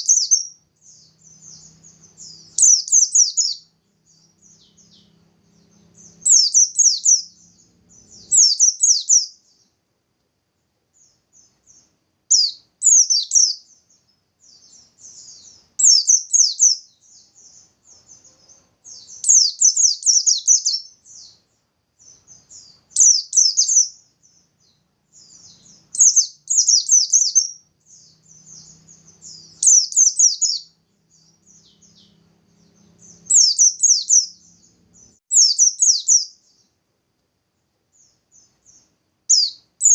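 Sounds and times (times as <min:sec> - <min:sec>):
bird singing rapid high notes: 0:00.0 - 0:09.6, 0:25.2 - 0:36.6
soft bird twittering: 0:00.0 - 0:09.8, 0:10.9 - 0:36.8, 0:37.9 - 0:39.9.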